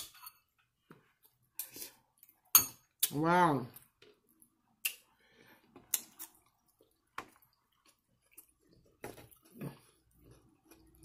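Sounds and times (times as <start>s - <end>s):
quiet chewing: 3.8s - 11.0s.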